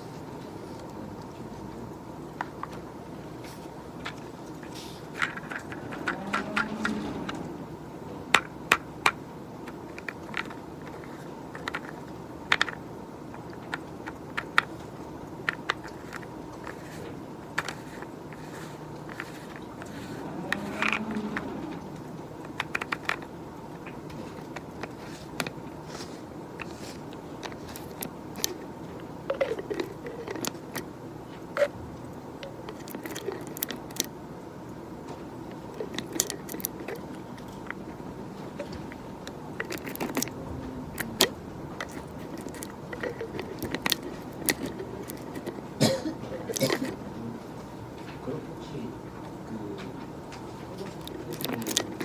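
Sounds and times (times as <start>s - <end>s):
faint office background: 0.0s - 52.0s.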